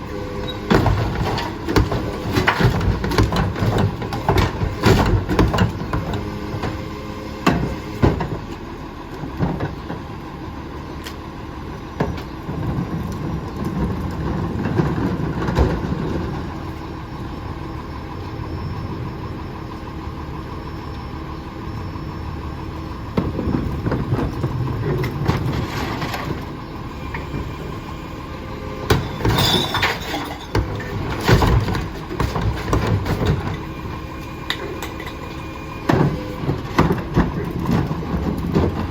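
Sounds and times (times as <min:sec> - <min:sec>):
garbage truck engine running: 0:00.0 - 0:38.9
bangs and clattering crashes: 0:28.8 - 0:33.6.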